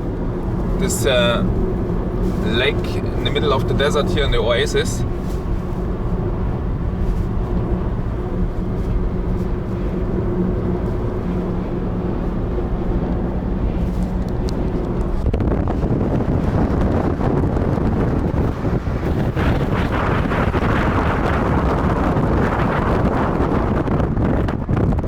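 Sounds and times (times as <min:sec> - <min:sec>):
rough rushing noise: 0:00.0 - 0:23.4
car engine hum: 0:00.0 - 0:25.0
road noise: 0:00.0 - 0:25.0.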